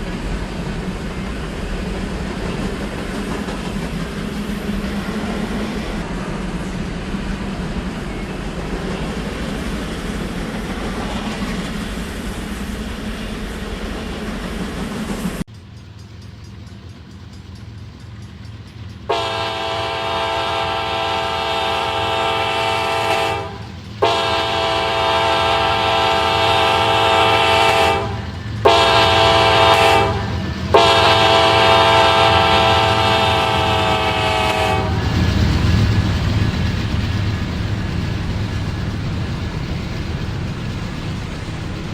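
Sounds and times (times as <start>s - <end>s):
low train rumble: 0.0s - 41.9s
diesel locomotive horn chord: 19.1s - 35.1s.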